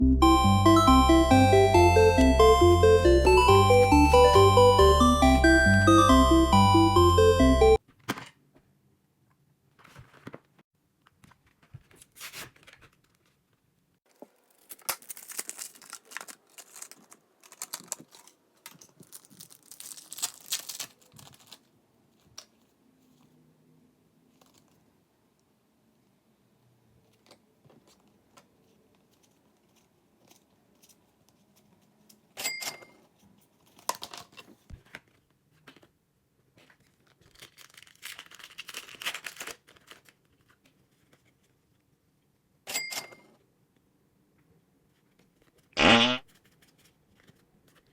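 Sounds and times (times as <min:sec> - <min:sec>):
packaging tearing and crinkling: 0:14.2 - 0:21.7, 0:37.0 - 0:40.6.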